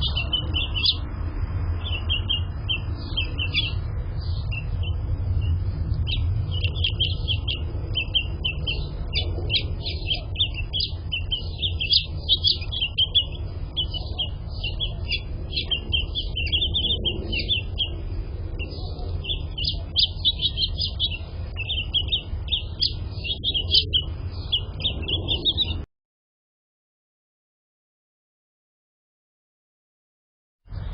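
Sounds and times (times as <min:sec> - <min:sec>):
finches chirping: 0:00.0 - 0:25.8
steady low rumble: 0:00.0 - 0:25.9.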